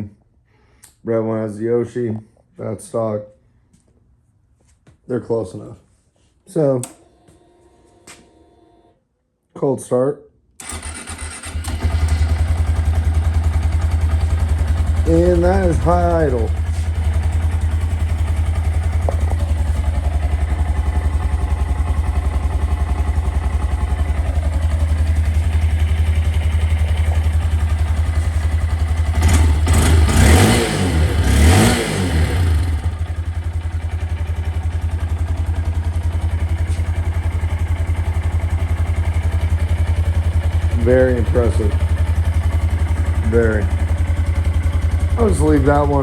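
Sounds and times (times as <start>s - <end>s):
engine throttle blips: 10.6s - 33.2s, 40.1s - 46.0s
motorcycle engine idling: 10.6s - 46.0s.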